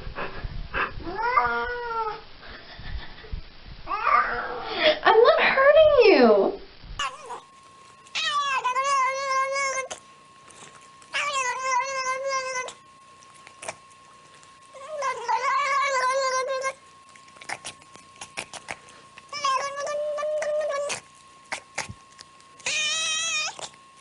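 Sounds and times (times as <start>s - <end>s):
cat yowling: 1.1s - 2.2s, 3.9s - 4.7s, 7.0s - 7.5s, 8.1s - 10.0s, 11.1s - 12.8s, 14.7s - 18.6s, 19.3s - 21.8s, 22.6s - 23.8s.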